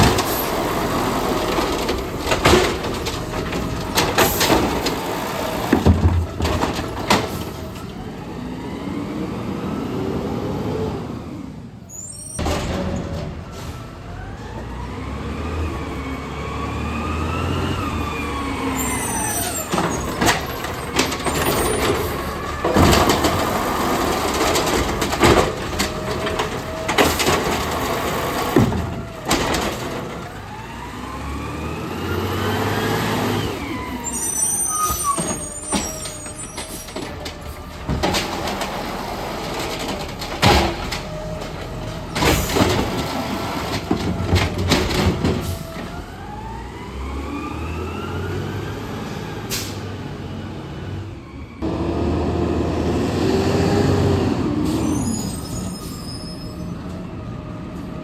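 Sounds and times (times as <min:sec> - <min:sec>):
metal clanks and knocks: 0:00.0 - 0:08.0, 0:35.2 - 0:45.9
garbage truck engine revving: 0:00.0 - 0:58.0.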